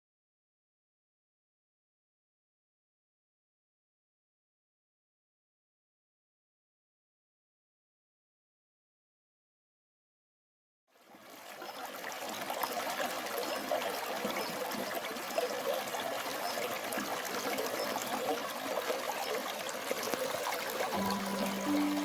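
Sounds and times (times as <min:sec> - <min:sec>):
stream water trickling: 0:10.9 - 0:22.0
music notes: 0:21.0 - 0:22.0.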